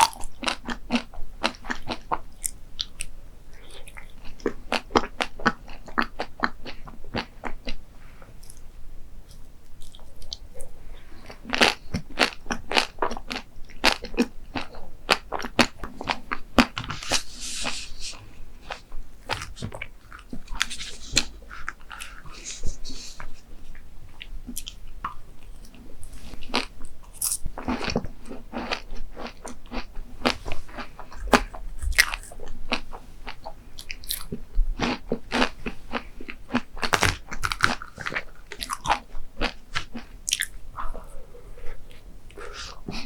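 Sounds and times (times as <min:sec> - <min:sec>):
chewing crunchy food: 0:00.0 - 0:07.8, 0:09.3 - 0:43.0
crisp crunching bites: 0:35.3 - 0:39.6.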